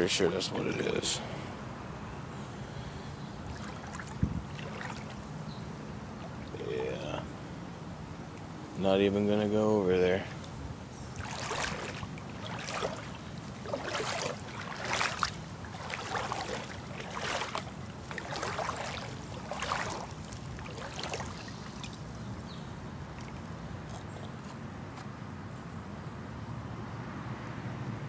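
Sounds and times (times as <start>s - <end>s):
feet wading through water: 2.7s - 7.3s, 10.1s - 25.0s
high insect buzz: 10.3s - 24.5s.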